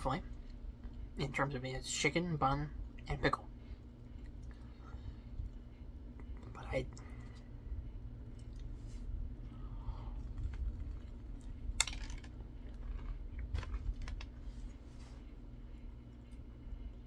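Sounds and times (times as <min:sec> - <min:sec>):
steady low rumble: 0:00.0 - 0:17.0
food wrapper crinkling: 0:10.6 - 0:14.5.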